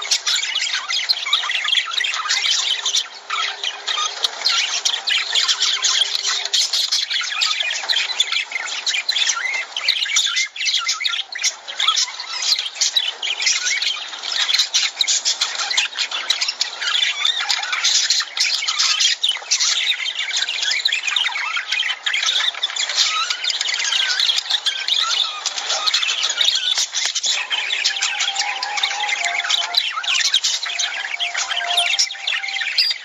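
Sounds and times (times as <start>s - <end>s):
lovebirds chattering and squawking: 23.6s - 33.0s.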